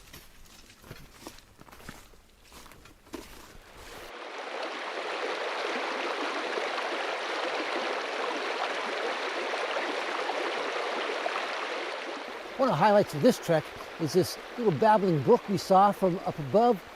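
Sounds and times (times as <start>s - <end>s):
brook babbling: 4.1s - 16.9s.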